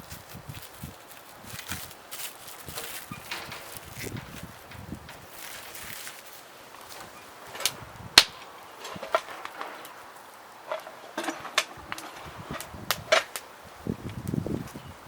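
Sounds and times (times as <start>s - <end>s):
sharp clicks and knocks: 2.8s - 5.7s.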